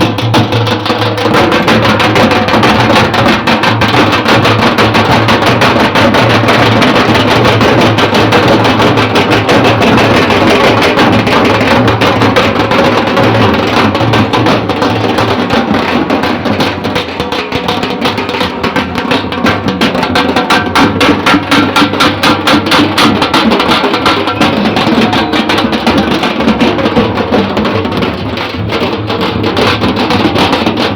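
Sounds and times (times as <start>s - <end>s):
fast dense group drumming: 0.0s - 30.9s.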